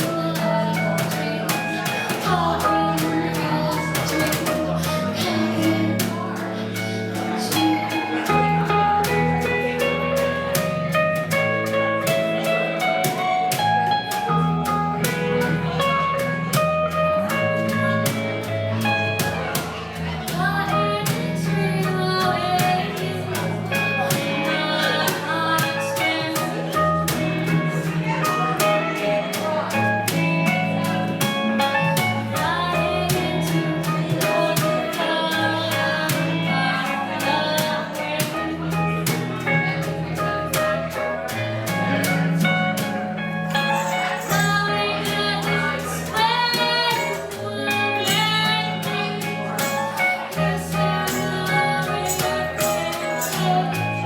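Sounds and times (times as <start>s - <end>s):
singing: 0.0s - 11.4s, 12.0s - 54.0s
bass line: 0.0s - 54.0s
guitar: 0.0s - 54.0s.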